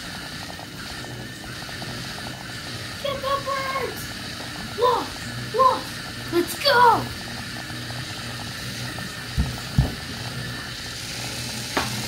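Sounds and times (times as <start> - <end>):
toy motor whirring: 0.0 - 12.0.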